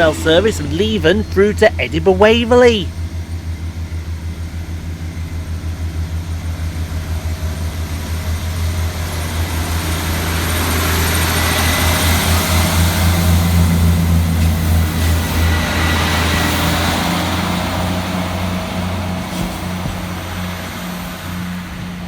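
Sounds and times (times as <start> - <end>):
train diesel engines throbbing: 0.0 - 2.9.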